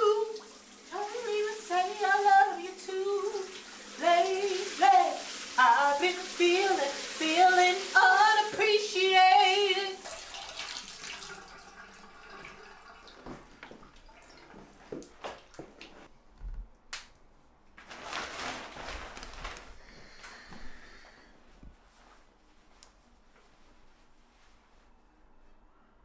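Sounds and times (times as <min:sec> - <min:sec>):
woman singing loudly: 0:00.0 - 0:10.0
shower spray hissing: 0:00.0 - 0:11.2.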